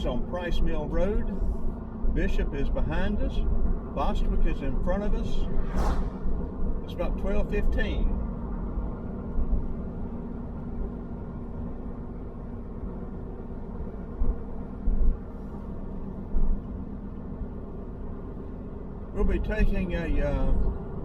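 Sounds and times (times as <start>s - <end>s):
engine and tyre drone: 4.8s - 16.3s.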